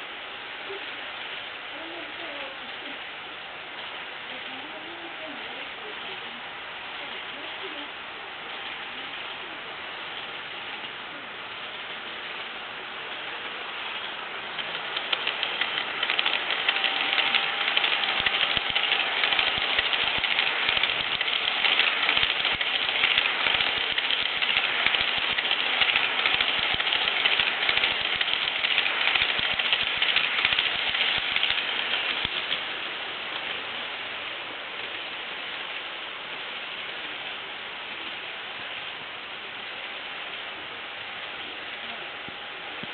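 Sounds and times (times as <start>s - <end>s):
model train wheels clicking on rails: 8.5s - 36.0s.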